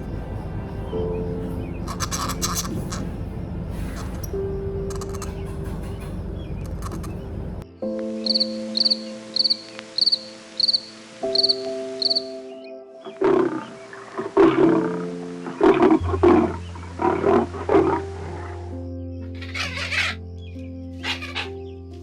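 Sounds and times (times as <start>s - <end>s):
soft background music: 0.0s - 22.0s
high chirp: 8.1s - 14.0s
buffalo grunting and bellowing: 13.1s - 20.2s.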